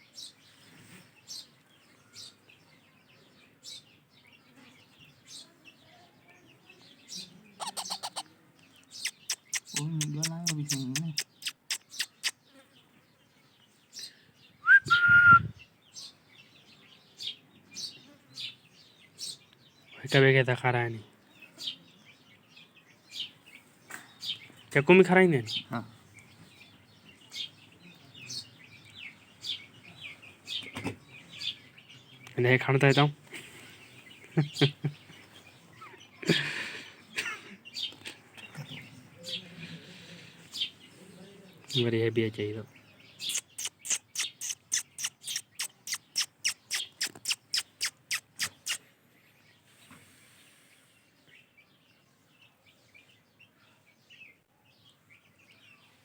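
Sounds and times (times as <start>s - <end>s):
parakeet chicks chirping: 7.0s - 12.6s, 21.4s - 36.2s, 40.4s - 41.8s, 42.7s - 48.8s
parrot chicks chirping: 7.1s - 12.7s, 33.0s - 41.0s, 42.8s - 48.9s
parrot chick squawking: 7.6s - 8.3s, 8.9s - 12.4s, 43.2s - 48.8s.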